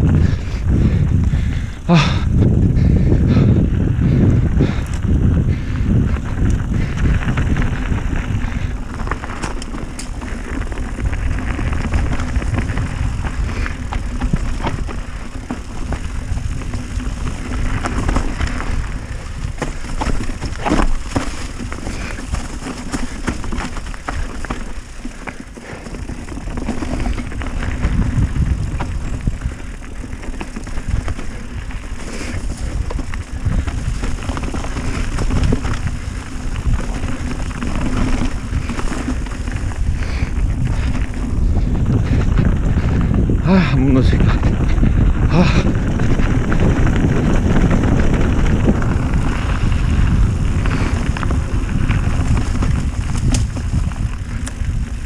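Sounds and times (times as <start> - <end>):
bike chain and frame rattling: 0.0 - 55.0
bike tyres rumbling on dirt: 0.0 - 55.0
wind buffeting microphone: 0.0 - 55.0.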